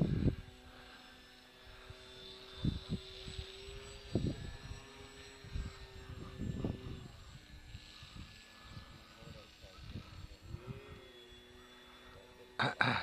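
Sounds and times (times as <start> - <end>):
wind buffeting microphone: 0.0 - 0.6, 2.4 - 11.2
model aircraft motor droning: 0.0 - 13.0.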